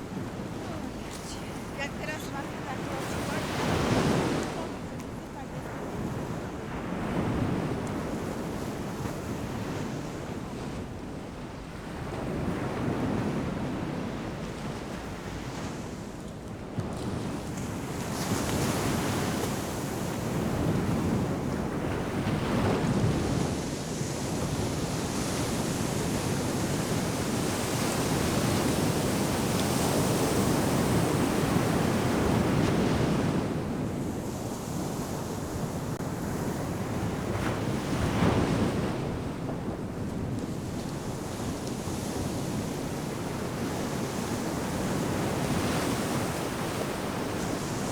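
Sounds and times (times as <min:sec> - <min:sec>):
ocean surf breaking on beach: 0:00.0 - 0:47.9
wind buffeting microphone: 0:00.0 - 0:47.9.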